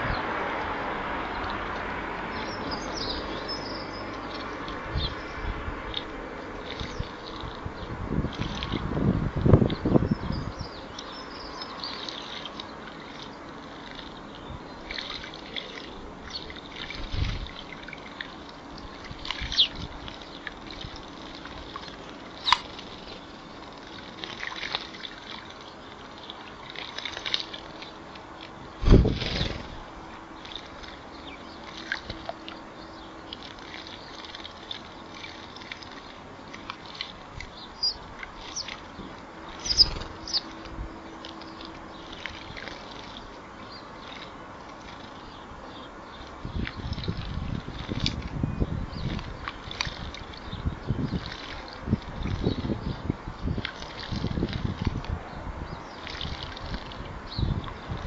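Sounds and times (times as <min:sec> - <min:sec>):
birds splashing water: 0:00.0 - 0:58.0
short high bird chirps: 0:39.6 - 0:40.5.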